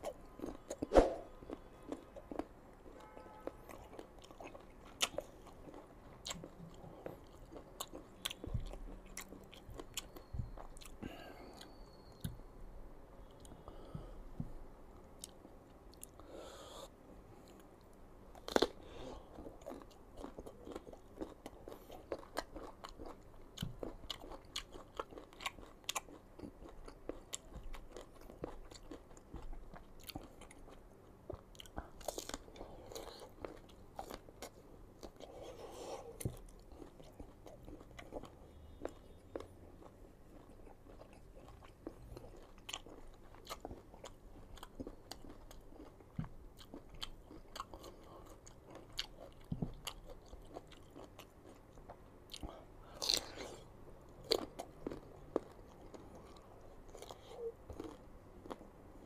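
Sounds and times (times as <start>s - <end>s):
crunchy chewing: 0.0s - 12.3s, 15.2s - 59.0s.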